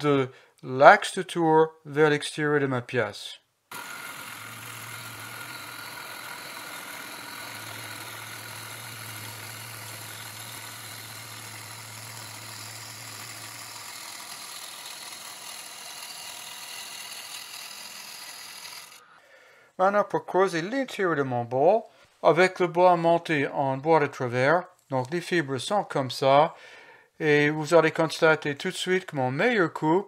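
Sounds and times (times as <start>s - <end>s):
wood lathe gouge cutting hiss: 3.7s - 19.1s.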